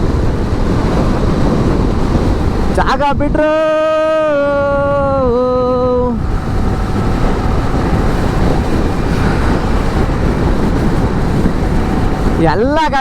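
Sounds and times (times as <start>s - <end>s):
road noise: 0.0s - 3.2s, 3.9s - 13.0s
wind rushing over microphone: 0.0s - 13.0s
motorcycle engine: 5.6s - 13.0s.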